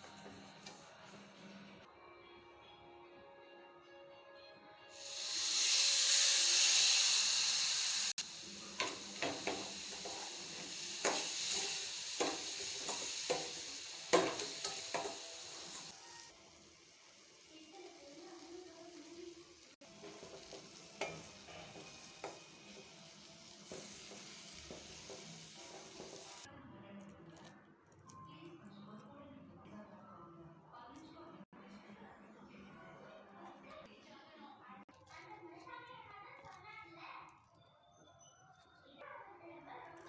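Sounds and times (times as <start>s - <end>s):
food sizzling in a pan: 4.9s - 26.5s
spoon scraping a pan: 8.4s - 16.0s, 19.9s - 26.5s.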